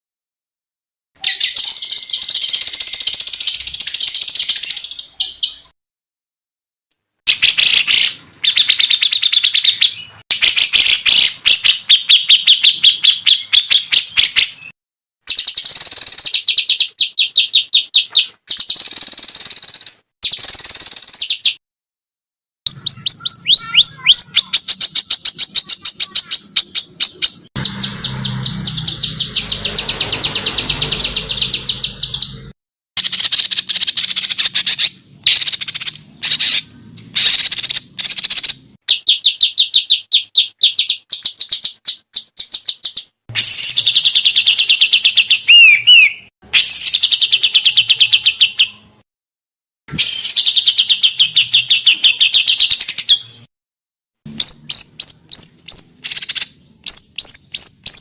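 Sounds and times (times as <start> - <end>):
songbird chirps and trills: 1.2 - 5.7, 22.7 - 32.4, 50.0 - 53.5.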